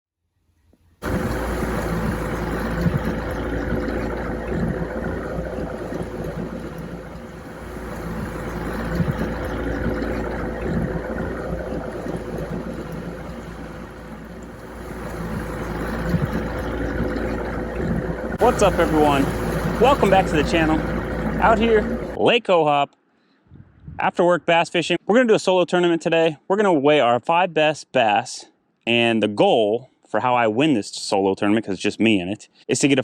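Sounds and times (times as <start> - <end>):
boat motor rumbling: 1.0 - 22.2.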